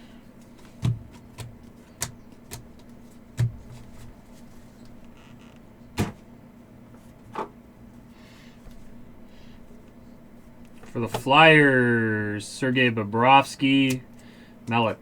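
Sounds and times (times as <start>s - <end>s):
steady low hum: 0.0s - 15.0s
trading cards tapping and snapping: 0.4s - 4.1s.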